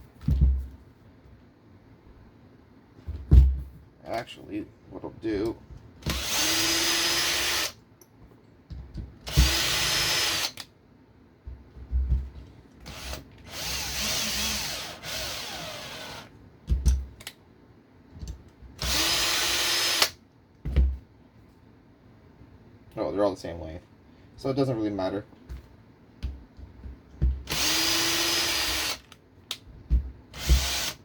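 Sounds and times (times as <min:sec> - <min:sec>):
electric screwdriver running: 0:27.5 - 0:29.0, 0:30.4 - 0:31.0.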